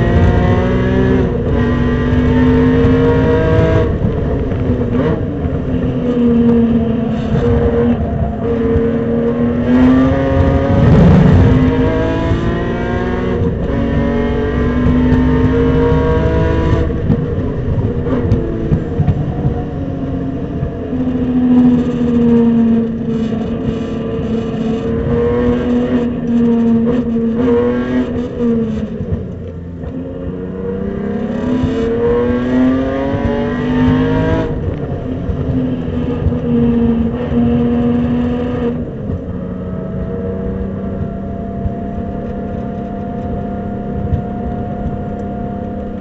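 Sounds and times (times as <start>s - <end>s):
low rumble: 0.0s - 27.4s
car engine revving at full throttle: 0.0s - 46.0s.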